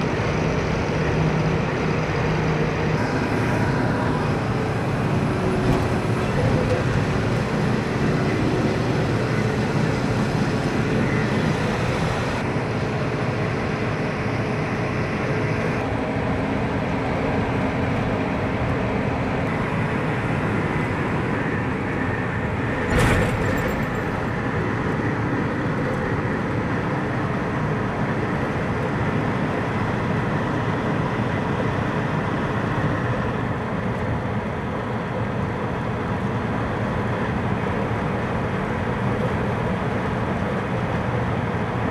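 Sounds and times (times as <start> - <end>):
truck engine and road noise: 0.0 - 41.9.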